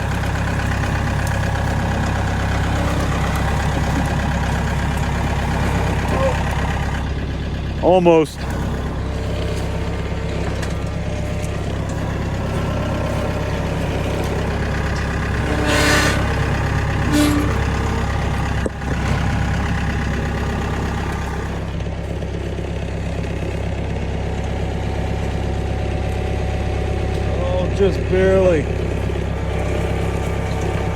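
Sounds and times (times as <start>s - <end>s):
tractor engine running: 0.0s - 30.9s
scraping rustle: 9.1s - 18.4s.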